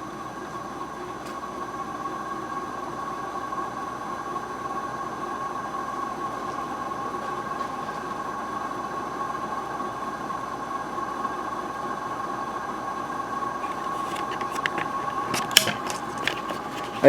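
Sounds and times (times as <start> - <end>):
ceiling fan running: 0.0 - 17.0.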